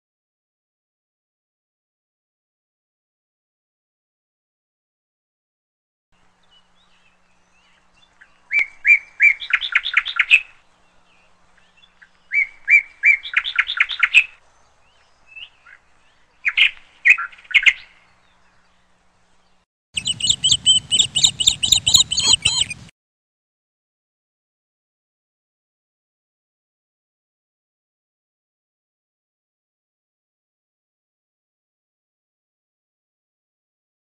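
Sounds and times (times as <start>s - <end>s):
songbird singing: 6.2s - 22.9s
high chirping: 20.0s - 22.9s.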